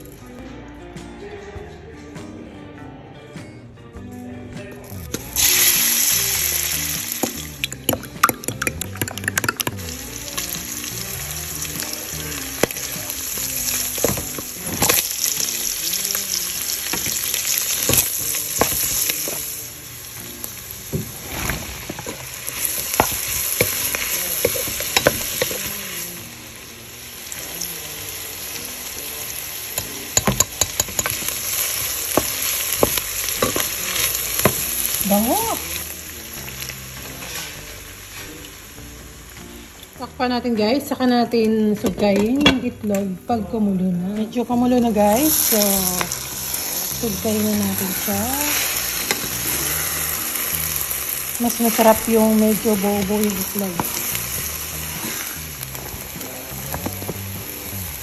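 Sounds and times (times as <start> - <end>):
meat sizzling in a pan: 4.8 - 41.2, 44.3 - 58.0
eggs beaten in glass bowl: 7.2 - 10.5, 29.8 - 33.7.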